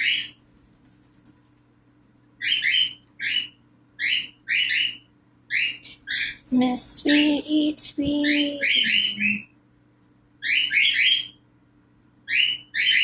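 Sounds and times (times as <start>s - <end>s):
cockatiels harsh chirping: 0.0s - 0.4s, 2.4s - 6.5s, 10.4s - 11.4s, 12.3s - 13.0s.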